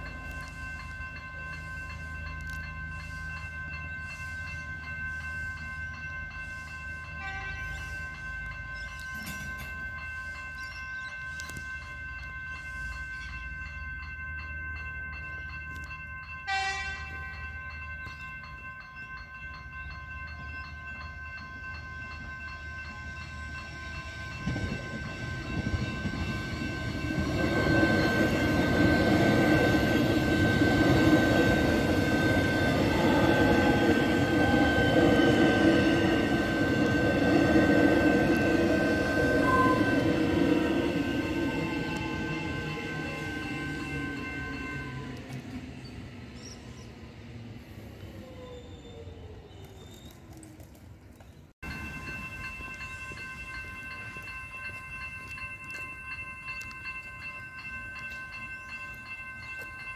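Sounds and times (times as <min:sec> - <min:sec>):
crossing warning bells ringing: 0:00.0 - 0:49.6, 0:51.1 - 0:59.9
electric train rumble: 0:00.0 - 0:59.9.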